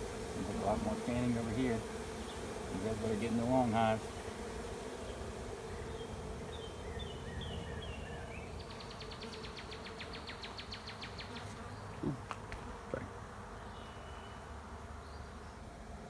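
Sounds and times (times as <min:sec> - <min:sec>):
bee swarm humming: 0:00.0 - 0:16.0
bird singing: 0:05.1 - 0:12.2, 0:12.8 - 0:15.6.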